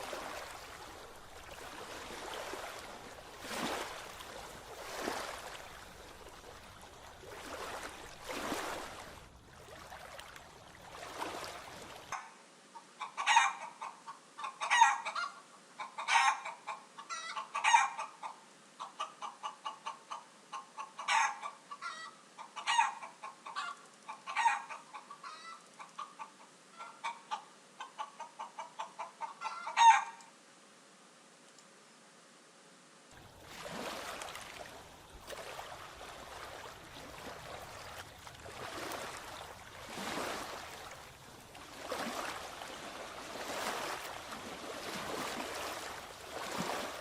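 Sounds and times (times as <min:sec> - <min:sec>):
water rushing: 0:00.0 - 0:12.2, 0:33.2 - 0:47.0
wind: 0:00.0 - 0:47.0.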